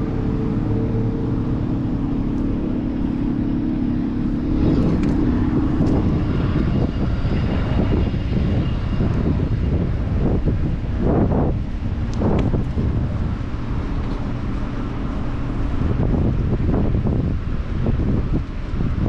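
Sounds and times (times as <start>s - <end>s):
motor vehicle engine hum: 0.0s - 19.0s
rushing traffic noise: 0.0s - 19.0s
wind: 0.0s - 19.0s.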